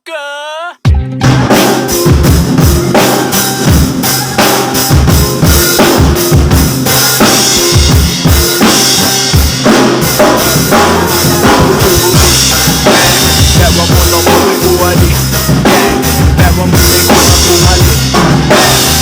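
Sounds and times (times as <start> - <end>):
drum kit playing: 0.8 - 19.0
kick drum hits: 0.9 - 1.5
bass line: 0.9 - 19.0.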